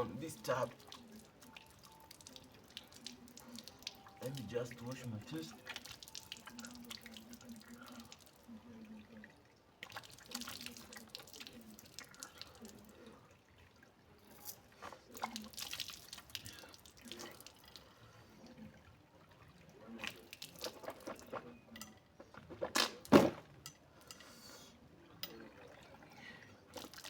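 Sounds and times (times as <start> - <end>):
person washing face: 0.7 - 8.5, 9.8 - 13.0, 14.3 - 17.6, 26.7 - 27.0.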